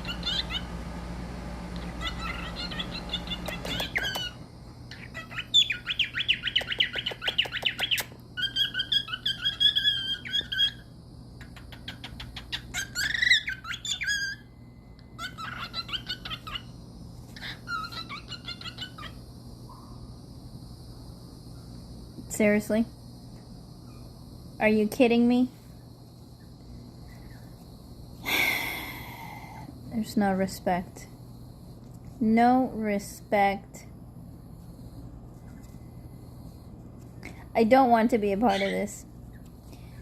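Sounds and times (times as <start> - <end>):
parrot squawking and chattering: 0.0 - 0.8, 1.8 - 14.5, 15.2 - 16.7, 17.3 - 19.2, 38.4 - 39.0.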